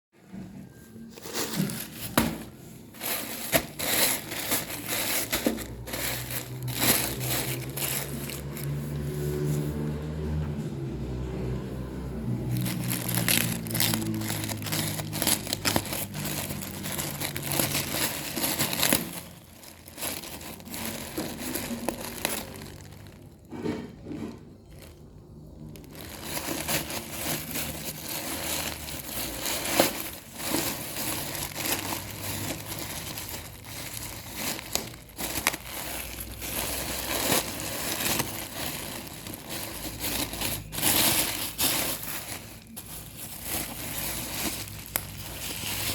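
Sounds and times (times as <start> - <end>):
plastic and paper wrapping crinkling: 0.7 - 45.9.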